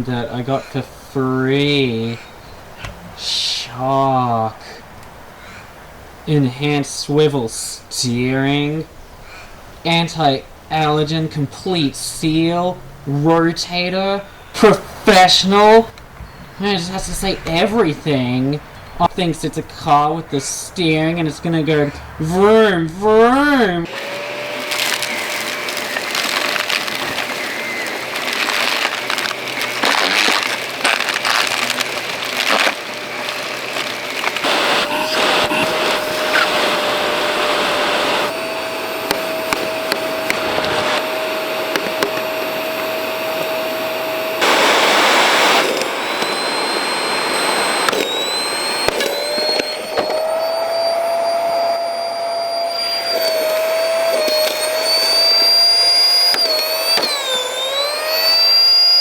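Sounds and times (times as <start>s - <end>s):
vacuum cleaner running: 23.1s - 59.0s.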